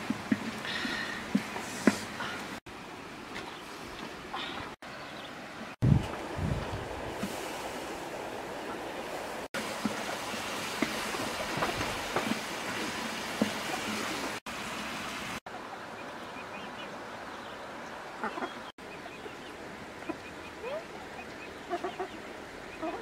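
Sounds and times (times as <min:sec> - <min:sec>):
chickens chirping: 0:16.0 - 0:23.0.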